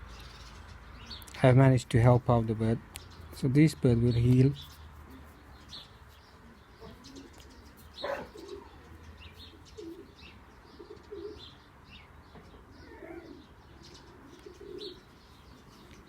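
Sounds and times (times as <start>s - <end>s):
pigeons cooing: 5.0s - 16.0s.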